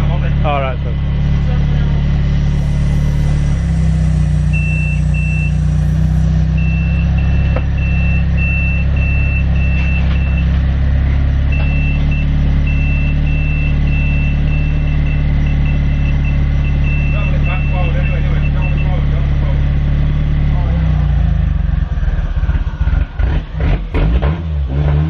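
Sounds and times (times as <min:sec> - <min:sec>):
car engine idling: 0:00.0 - 0:23.6
short high electronic beeps: 0:02.4 - 0:10.4.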